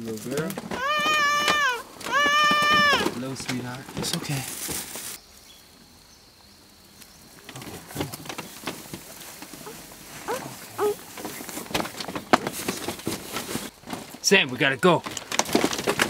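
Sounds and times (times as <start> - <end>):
clothing and straw rustling: 0.0 - 5.7, 6.9 - 16.0
child whimpering: 0.7 - 3.2, 9.6 - 11.0.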